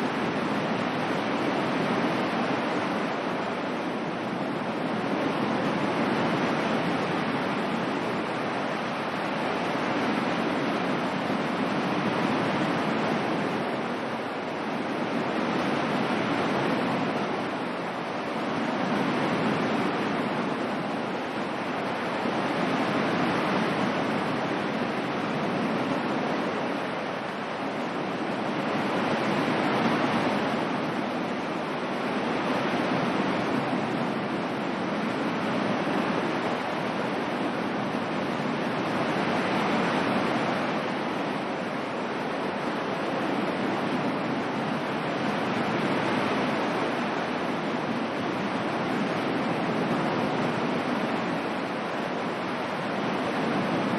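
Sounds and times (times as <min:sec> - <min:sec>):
ocean waves rushing: 0:00.0 - 0:53.9.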